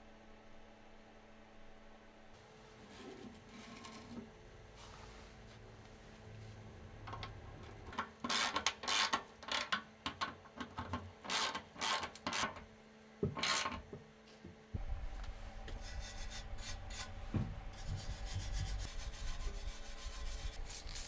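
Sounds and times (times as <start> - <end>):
hand scraping a surface: 15.7 - 21.0.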